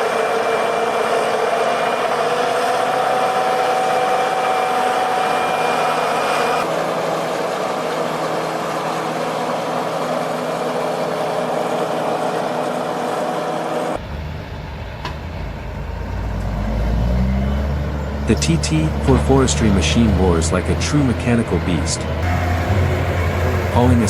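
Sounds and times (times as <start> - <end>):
heavy machinery engine running: 0.0 - 24.0
deep engine rumble: 14.0 - 24.0.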